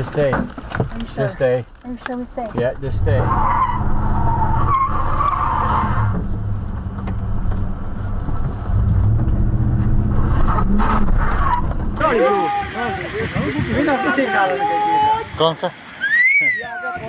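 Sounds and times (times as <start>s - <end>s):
vehicle engine running: 2.6s - 13.8s.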